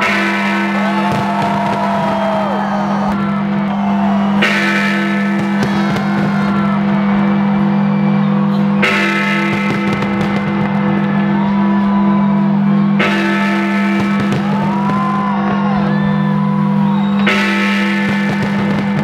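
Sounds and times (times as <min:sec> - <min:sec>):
steady low drone: 0:01.8 - 0:13.2.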